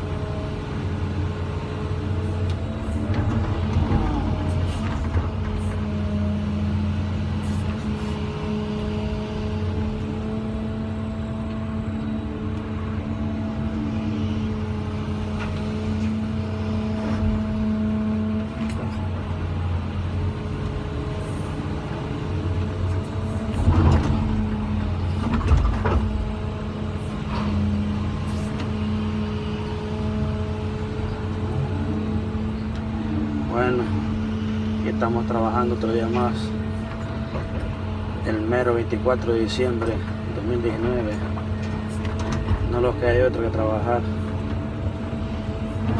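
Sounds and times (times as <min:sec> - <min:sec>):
excavator engine drone: 0:00.0 - 0:45.9.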